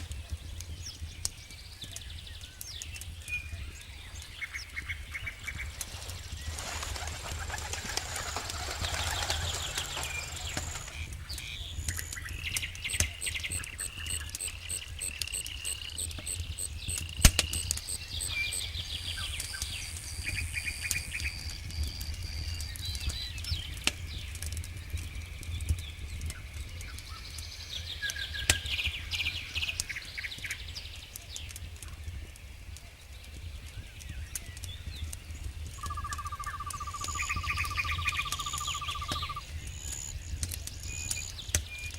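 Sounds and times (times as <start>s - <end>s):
birds chirping and trilling: 0.0s - 41.9s
campfire crackling and popping: 0.0s - 41.9s.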